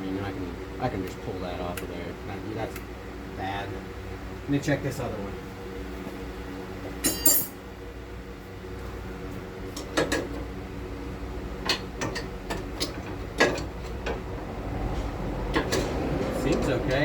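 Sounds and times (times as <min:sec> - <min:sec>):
steady low hum: 0:00.0 - 0:17.0
metal tools clinking: 0:07.0 - 0:07.6.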